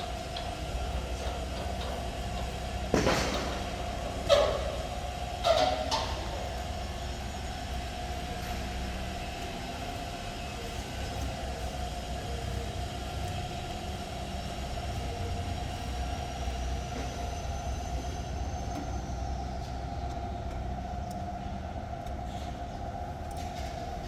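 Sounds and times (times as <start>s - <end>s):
loud metallic clanks: 0.0s - 6.6s
dryer low hum: 0.0s - 24.0s.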